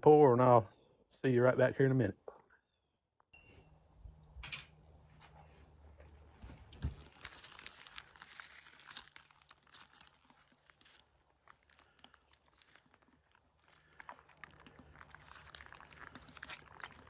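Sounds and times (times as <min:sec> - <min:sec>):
plastic pouch crinkling: 0:06.7 - 0:17.0.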